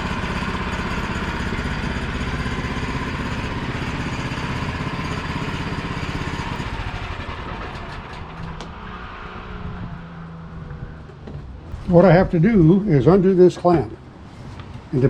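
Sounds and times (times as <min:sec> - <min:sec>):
sawmill gasoline engine running: 0:00.0 - 0:09.2.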